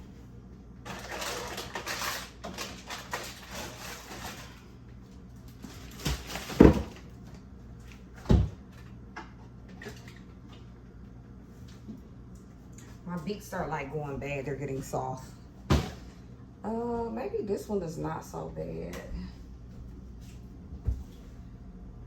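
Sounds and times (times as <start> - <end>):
food packaging rustling: 0.8 - 7.3
items thumping down: 5.6 - 7.1, 15.6 - 16.2.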